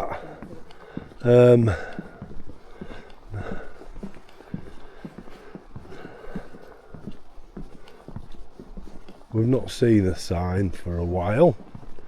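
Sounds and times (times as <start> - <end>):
footsteps on wooden boardwalk: 0.0 - 12.0.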